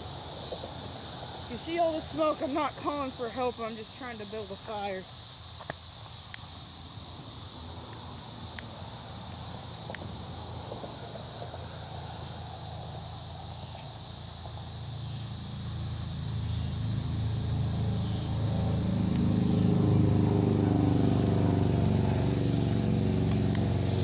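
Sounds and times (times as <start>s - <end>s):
insects chirring: 0.0s - 24.0s
sharp snaps: 5.6s - 6.6s, 7.8s - 10.2s, 17.8s - 19.5s, 22.0s - 24.0s
low vehicle rumble: 14.5s - 24.0s.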